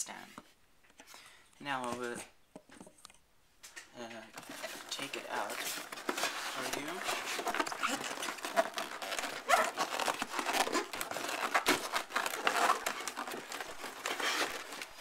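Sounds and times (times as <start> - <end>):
packaging crinkling and rustling: 4.3 - 15.0.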